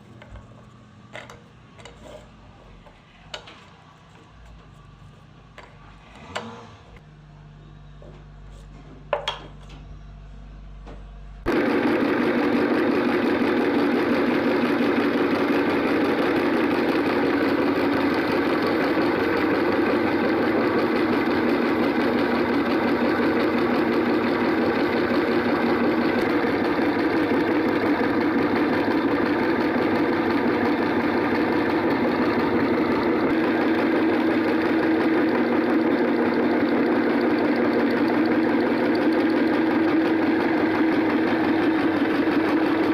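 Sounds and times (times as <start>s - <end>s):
meat grinder motor running: 11.5s - 42.9s.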